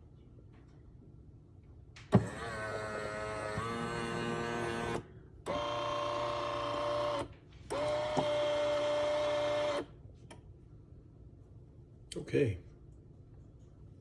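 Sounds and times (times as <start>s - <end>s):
espresso machine motor whining: 2.1s - 9.9s.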